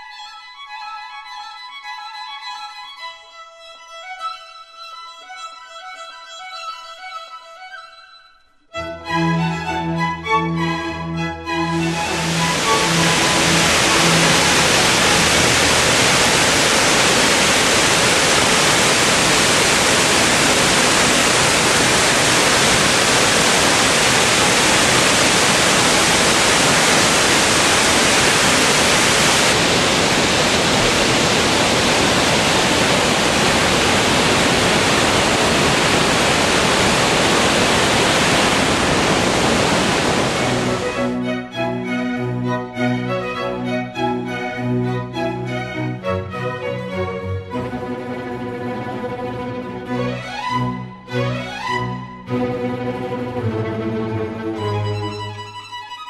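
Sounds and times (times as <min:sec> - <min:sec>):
string music: 0:00.0 - 0:56.0
waterfall rushing: 0:11.5 - 0:41.3.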